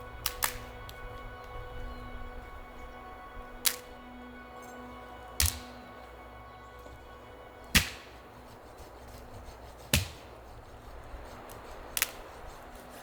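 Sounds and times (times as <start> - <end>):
axe blade striking wood: 3.6 - 3.8, 5.4 - 5.7, 7.7 - 8.2, 8.8 - 10.4.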